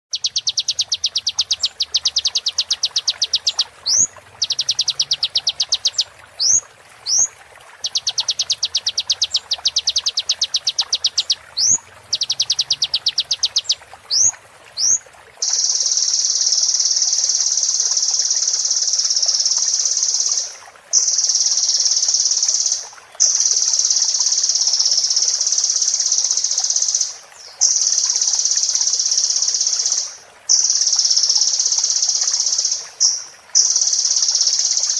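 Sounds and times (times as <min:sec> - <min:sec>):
bird chattering trills: 0:00.1 - 0:17.0
high buzzing bird trill: 0:00.2 - 0:23.4.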